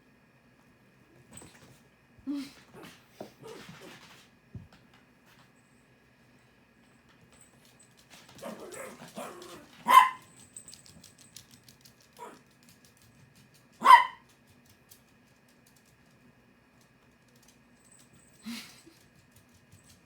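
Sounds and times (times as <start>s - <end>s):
small dog barking: 8.4s - 10.3s, 12.2s - 12.4s, 13.8s - 14.3s.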